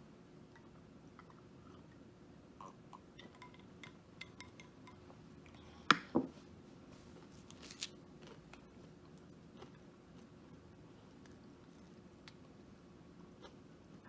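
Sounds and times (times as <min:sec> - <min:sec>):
light eating clicks and taps: 0:02.6 - 0:06.1, 0:11.2 - 0:12.6.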